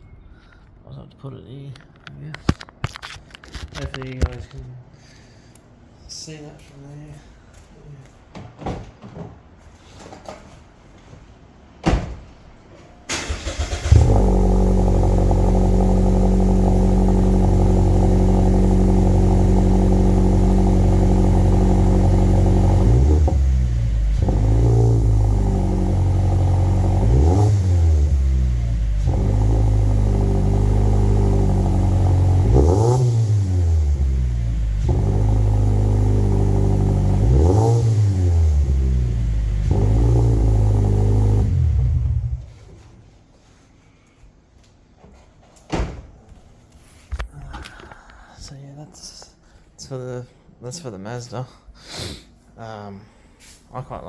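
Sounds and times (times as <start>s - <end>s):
car engine starting and revving: 13.1s - 42.6s.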